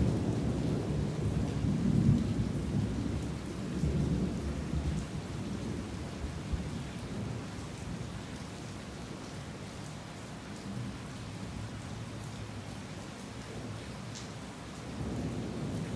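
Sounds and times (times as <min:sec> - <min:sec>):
heavy rain: 0:00.0 - 0:15.9.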